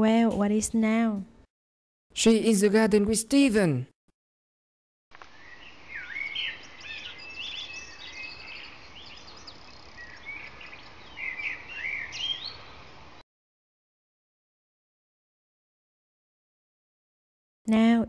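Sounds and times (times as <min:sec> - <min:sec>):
songbirds chirping and singing: 0:05.3 - 0:13.0.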